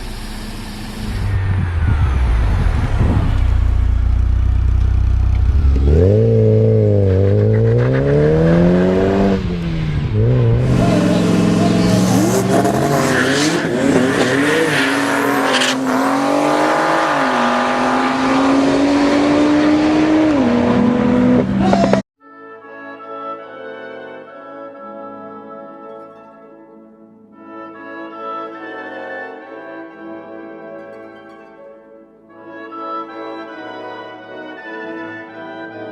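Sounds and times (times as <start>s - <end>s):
car engine accelerating through gears: 0.0s - 22.0s.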